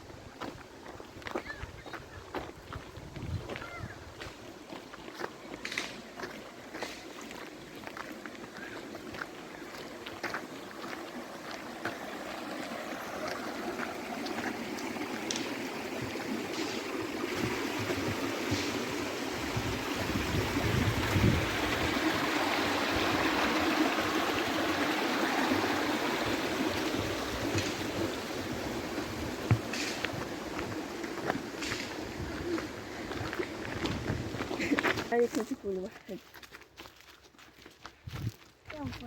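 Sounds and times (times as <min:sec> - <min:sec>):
stream water running: 0:00.0 - 0:39.0.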